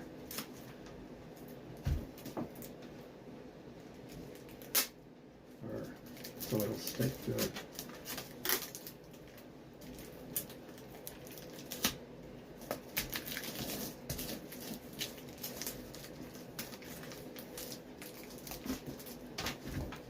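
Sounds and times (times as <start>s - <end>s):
faint steady hum: 0.0s - 20.0s
tape handling clicks and crackles: 4.0s - 5.0s, 6.0s - 12.0s.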